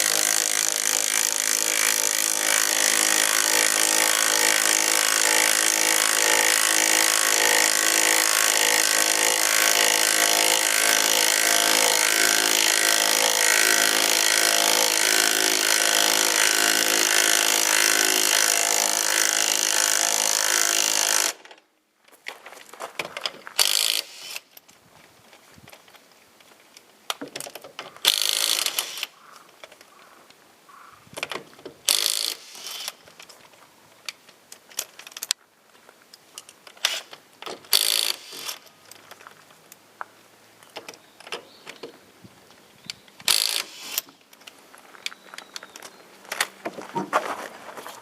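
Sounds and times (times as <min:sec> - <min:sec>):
ratchet wrench clicking: 0:37.7 - 0:38.6, 0:43.2 - 0:44.1.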